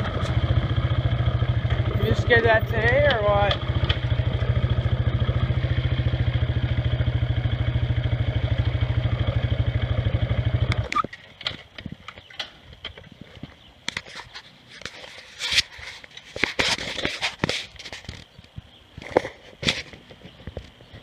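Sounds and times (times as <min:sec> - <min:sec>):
loader engine running: 0:00.0 - 0:10.9.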